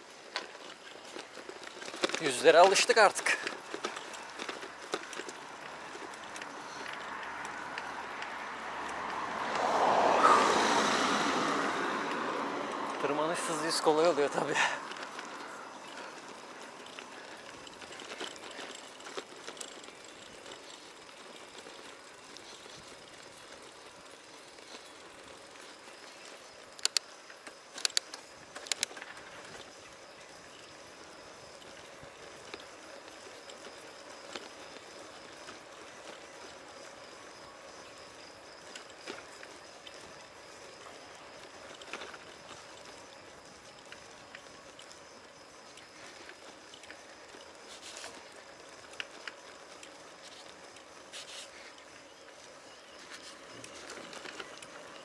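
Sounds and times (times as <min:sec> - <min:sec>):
bicycle sharp clacks: 0:00.0 - 0:10.4, 0:12.0 - 0:55.0
bicycle rolling hiss: 0:00.0 - 0:55.0
vehicle passing by: 0:05.4 - 0:17.3.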